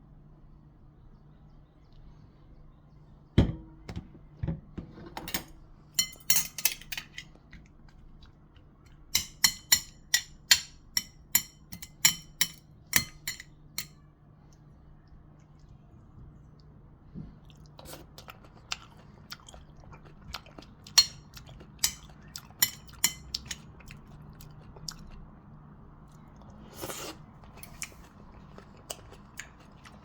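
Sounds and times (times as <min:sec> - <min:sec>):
utensils clinking against dishes: 0:05.1 - 0:07.4, 0:09.2 - 0:14.0, 0:21.8 - 0:23.7.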